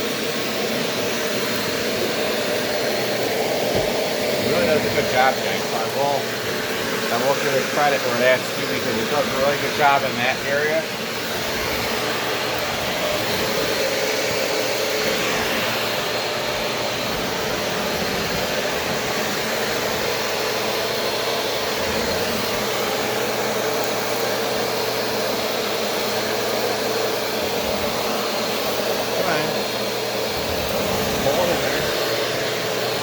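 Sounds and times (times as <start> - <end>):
vacuum cleaner running: 0.0 - 33.0.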